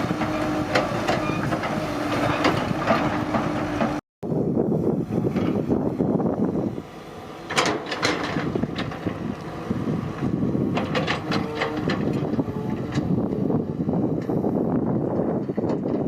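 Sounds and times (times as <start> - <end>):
excavator diesel engine running: 0.0 - 16.0
metallic clanks and knocks: 7.5 - 9.2.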